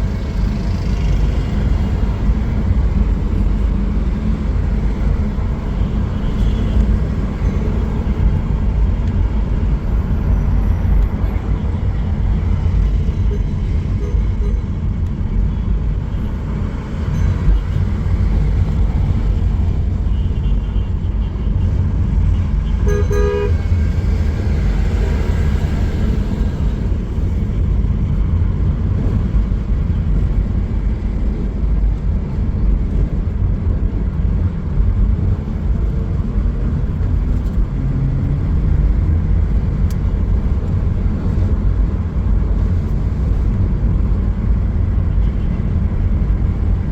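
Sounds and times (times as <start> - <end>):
rumble of passing vehicles: 0.0 - 46.9
car horn toot: 22.4 - 23.7.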